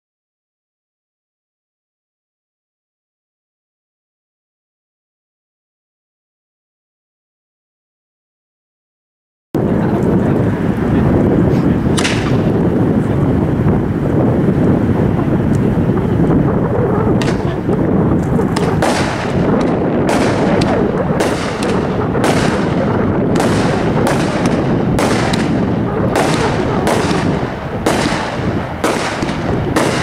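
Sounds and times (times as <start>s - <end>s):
firework cake crackling roar: 9.6s - 30.0s
sharp firework reports: 9.6s - 30.0s.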